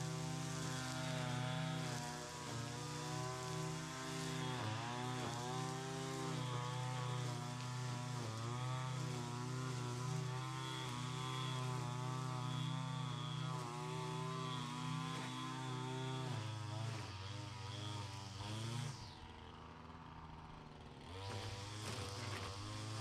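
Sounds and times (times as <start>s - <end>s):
small gas engine running: 0.0s - 23.0s.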